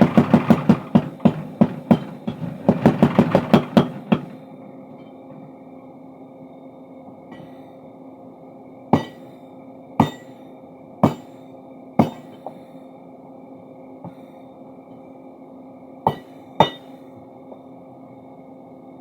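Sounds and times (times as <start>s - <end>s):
hammer striking steel: 0.0s - 4.4s, 9.0s - 9.4s, 10.0s - 10.4s, 11.0s - 11.4s, 12.0s - 12.6s, 16.1s - 17.0s
steady motor hum: 0.0s - 19.0s.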